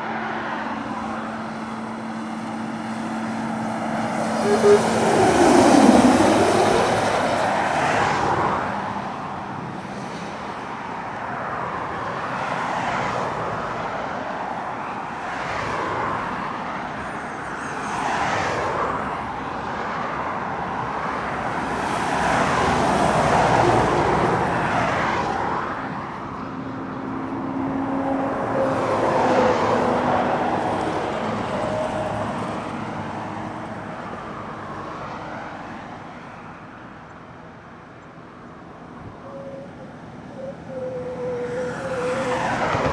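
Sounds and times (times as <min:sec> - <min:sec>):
lorry engines working uphill: 0:00.0 - 0:12.6, 0:35.8 - 0:42.9
road traffic passing: 0:00.0 - 0:42.9.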